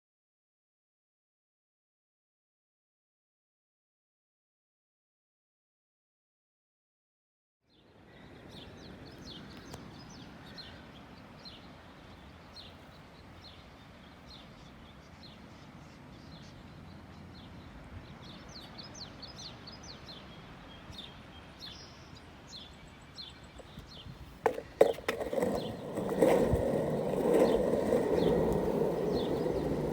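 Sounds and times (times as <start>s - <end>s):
small birds chirping: 7.7s - 29.9s.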